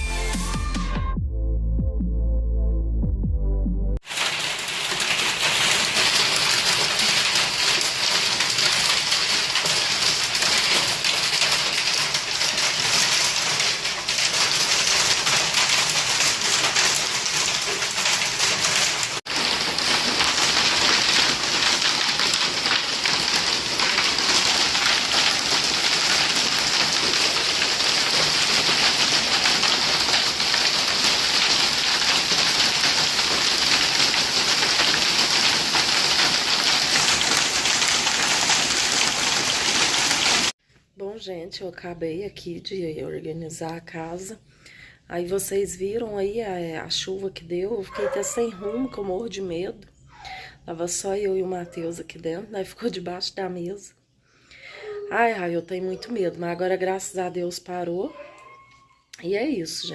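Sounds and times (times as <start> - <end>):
heavy rain and hail: 4.0 - 40.6.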